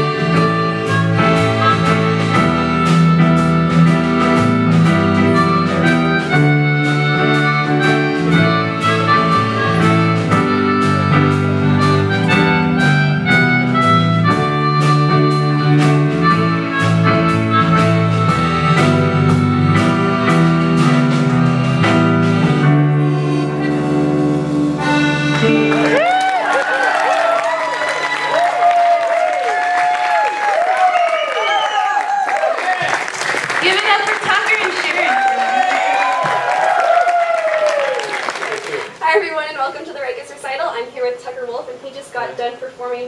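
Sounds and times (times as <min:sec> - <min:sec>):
accordion chords: 0:00.0 - 0:26.0.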